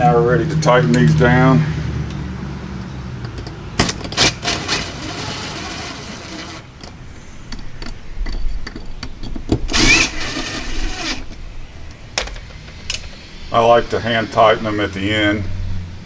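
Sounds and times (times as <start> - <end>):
cordless drill driving screws: 4.2 - 6.7, 9.7 - 11.4.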